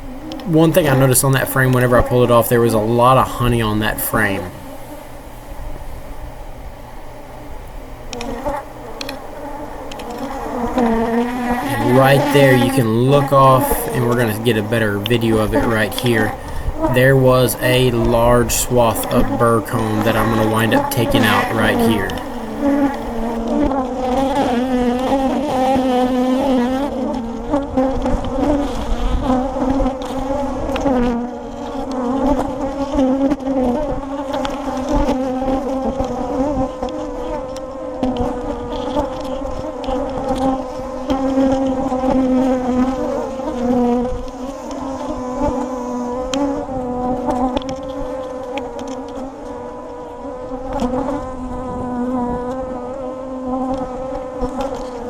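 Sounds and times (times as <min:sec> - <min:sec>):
bees buzzing: 0:00.0 - 0:06.2, 0:06.9 - 0:23.4.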